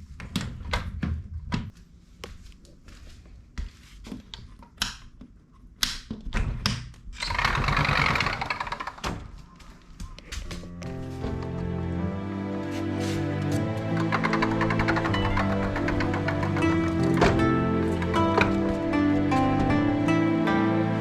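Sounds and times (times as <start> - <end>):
harsh rasping noise: 12.6 - 20.0.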